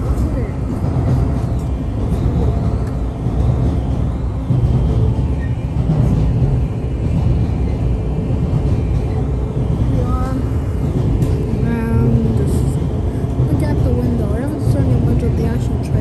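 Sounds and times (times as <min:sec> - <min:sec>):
train low rumble inside car: 0:00.0 - 0:16.0.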